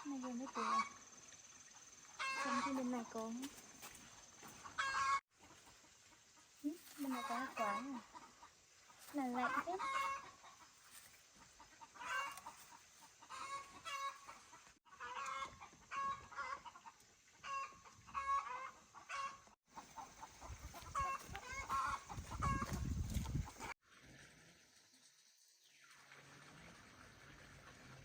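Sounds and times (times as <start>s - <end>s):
chickens clucking: 1.8s - 3.4s, 4.5s - 23.8s.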